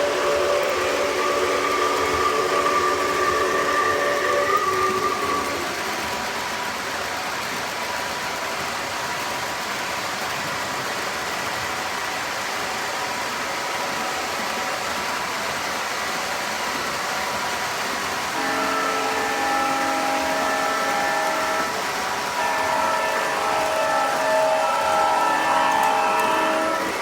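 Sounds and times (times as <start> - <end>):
multi-tone train whistle: 0.0 - 7.6, 16.0 - 27.0
model train whirring on track: 0.0 - 27.0.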